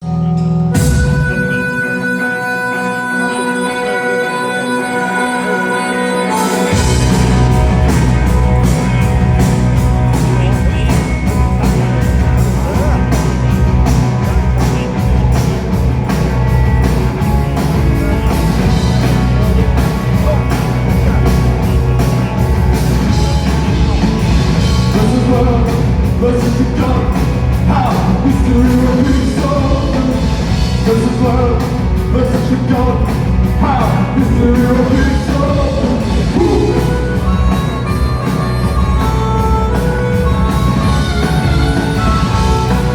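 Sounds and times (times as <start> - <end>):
live rock band playing: 0.0 - 42.9
wavering melody line: 36.0 - 42.9.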